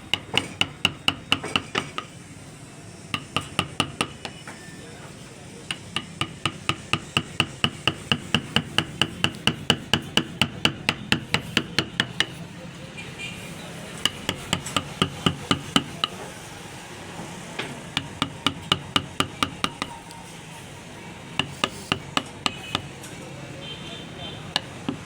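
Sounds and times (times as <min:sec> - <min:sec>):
hammer striking metal: 0:00.1 - 0:02.1, 0:03.1 - 0:04.4, 0:05.7 - 0:12.4, 0:14.0 - 0:16.2, 0:18.0 - 0:20.0.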